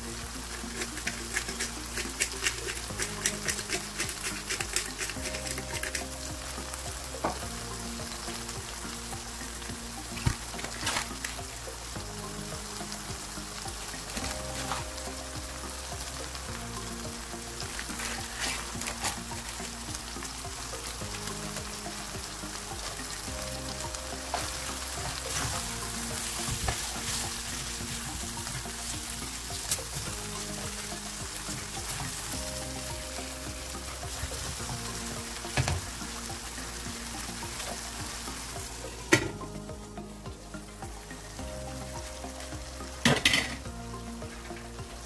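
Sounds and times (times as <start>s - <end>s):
food sizzling in oil: 0.0s - 45.0s.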